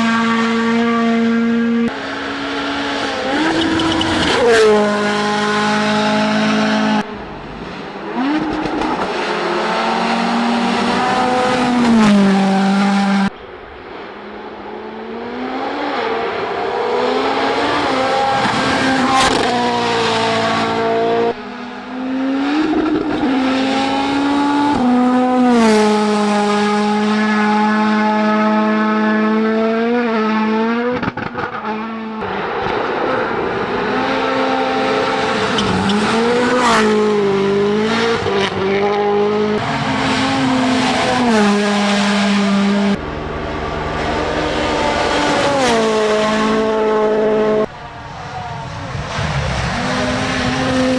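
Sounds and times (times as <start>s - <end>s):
rally car engines at full throttle: 0.0s - 50.9s.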